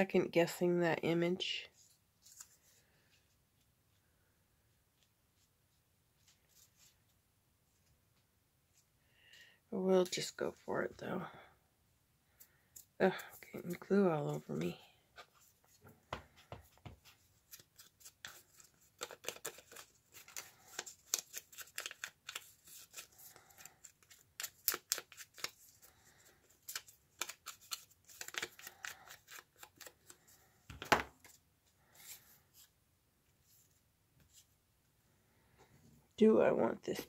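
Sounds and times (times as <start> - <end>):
paper being handled: 17.0 - 32.7
scissors snipping paper: 17.5 - 25.9, 26.5 - 30.2.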